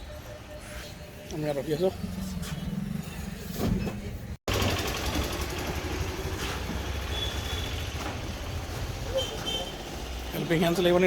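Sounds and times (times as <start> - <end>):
vehicle engine idling: 4.5 - 11.0.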